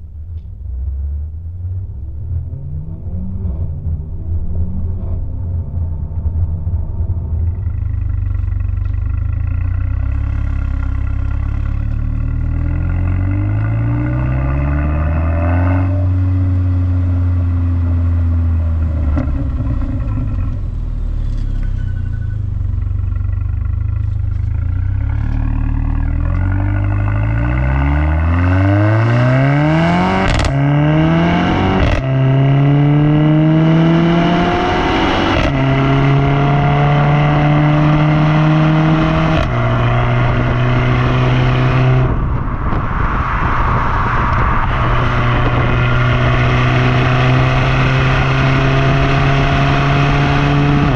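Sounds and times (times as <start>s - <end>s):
exhaust crack at gear change: 0.0s - 13.6s, 18.6s - 21.7s, 22.4s - 27.2s
car engine revving: 0.0s - 50.9s.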